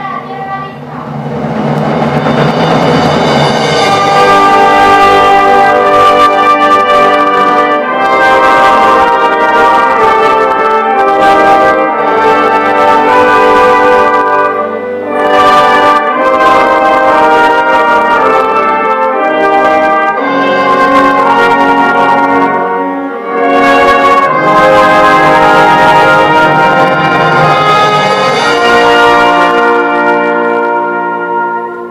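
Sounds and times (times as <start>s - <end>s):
brass chords: 0.0s - 31.9s
wind band playing: 0.0s - 31.9s.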